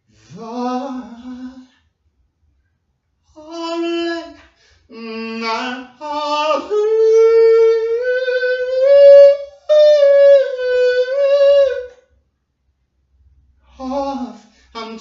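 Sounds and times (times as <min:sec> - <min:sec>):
person singing wordless held notes: 0:03.3 - 0:12.0, 0:13.7 - 0:15.0.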